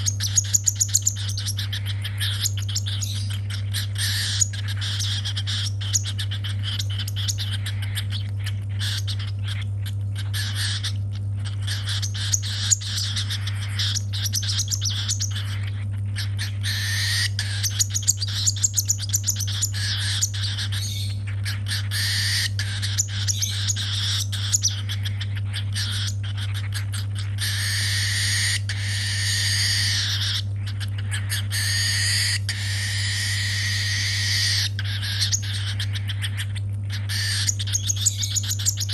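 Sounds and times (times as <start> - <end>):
baby bird begging chirps: 0.0 - 38.9.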